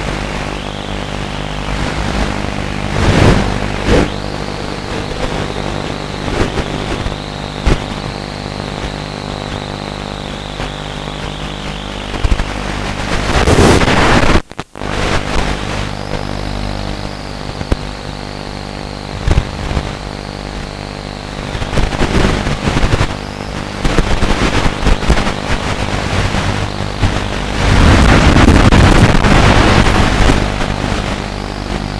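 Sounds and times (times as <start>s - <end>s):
model airplane motor whine: 0.0s - 13.3s
crackles: 0.0s - 31.9s
rushing wind: 1.5s - 6.7s, 21.8s - 31.9s.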